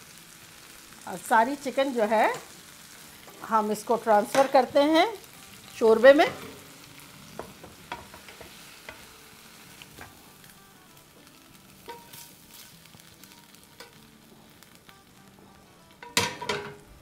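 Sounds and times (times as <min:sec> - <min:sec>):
chicken sizzling in hot pans: 0:00.0 - 0:17.0
metal tongs clicking on pans: 0:04.2 - 0:04.7, 0:13.7 - 0:14.0, 0:16.0 - 0:16.8.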